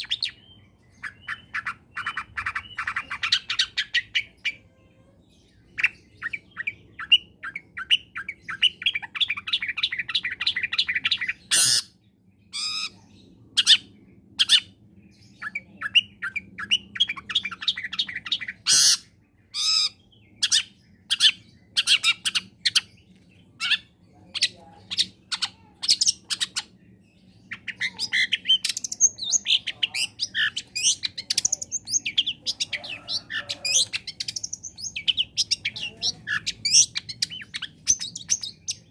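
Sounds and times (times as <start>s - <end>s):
bird chirping: 0.0s - 38.9s
bird song: 0.0s - 38.9s
harsh bird calls: 0.0s - 38.9s.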